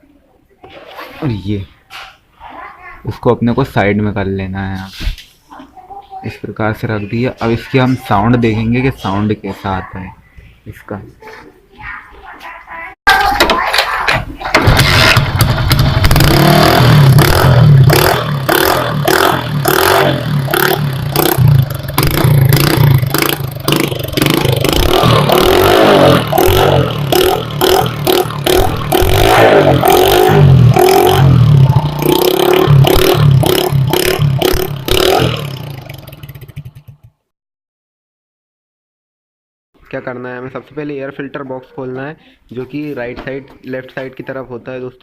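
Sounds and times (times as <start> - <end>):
motorcycle engine revving: 14.6 - 37.3.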